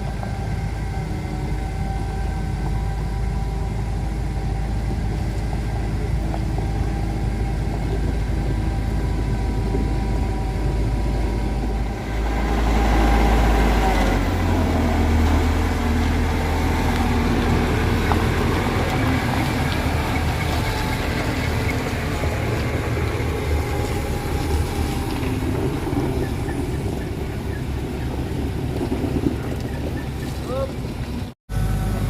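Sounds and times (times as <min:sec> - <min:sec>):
truck engine labouring: 0:00.0 - 0:32.0.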